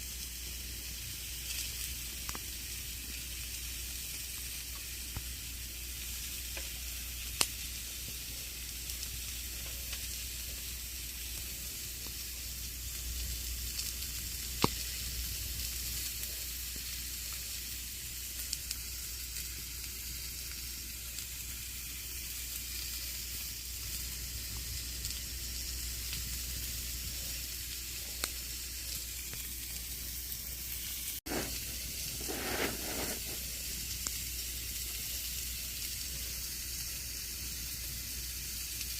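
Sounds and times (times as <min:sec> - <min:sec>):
campfire hissing and crackling: 0:00.0 - 0:38.9
sharp fire pops: 0:13.7 - 0:15.6
rustling flare: 0:31.2 - 0:33.5.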